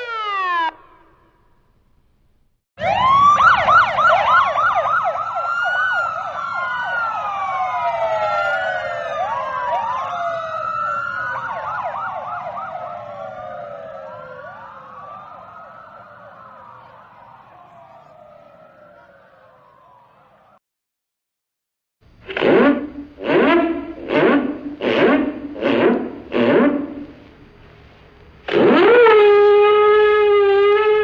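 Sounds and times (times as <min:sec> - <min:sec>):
emergency vehicle sirens wailing: 0:00.0 - 0:01.3, 0:02.8 - 0:20.6, 0:28.4 - 0:31.0.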